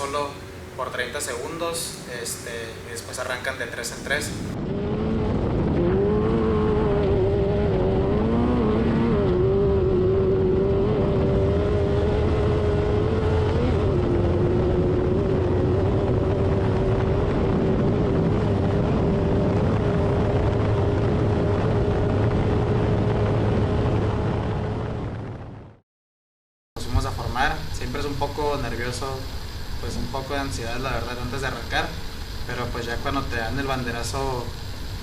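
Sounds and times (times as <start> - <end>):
race car engine at high revs: 2.0 - 24.0.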